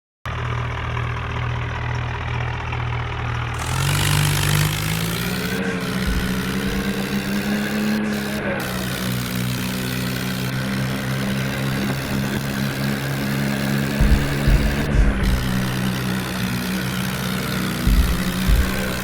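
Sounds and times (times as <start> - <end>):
tractor engine revving: 0.3 - 19.0.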